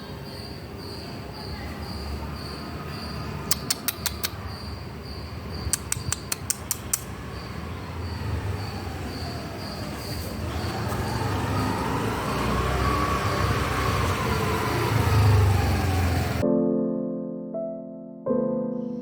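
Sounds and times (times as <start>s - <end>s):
insect chirping: 0.0s - 16.4s
sharp clicks or snaps: 3.5s - 4.4s, 5.7s - 7.1s.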